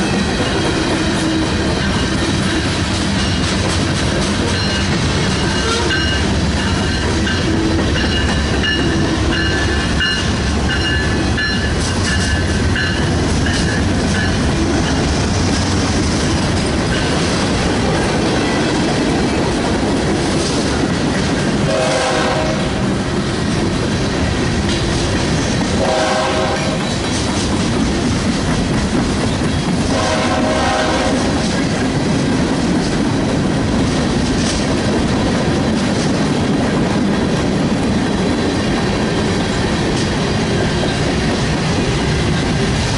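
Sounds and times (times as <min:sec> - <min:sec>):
train rumbling past: 0:00.0 - 0:42.9
locomotive horn blasts: 0:05.5 - 0:06.2, 0:21.6 - 0:22.8, 0:25.8 - 0:26.9, 0:29.9 - 0:31.3.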